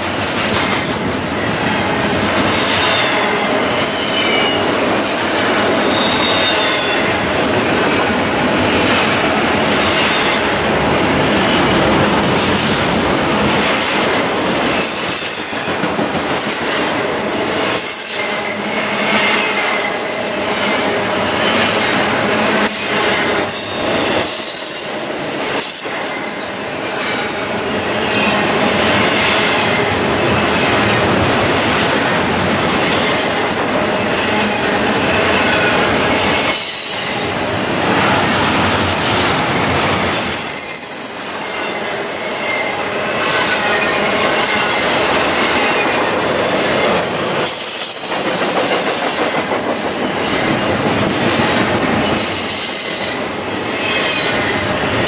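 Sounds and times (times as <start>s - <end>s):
steel wheels rumbling on rail: 0.0s - 55.0s
high wheel squeals: 5.8s - 7.1s.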